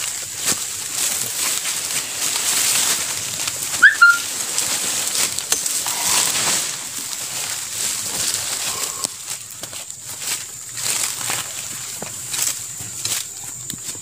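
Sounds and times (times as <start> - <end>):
steady high hiss: 0.3 - 9.4
bird chirp: 3.8 - 4.2.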